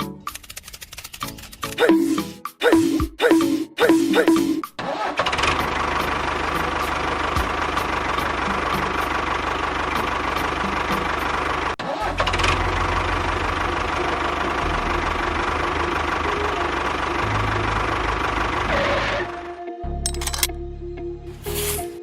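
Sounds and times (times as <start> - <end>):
small engine running: 4.9 - 20.5.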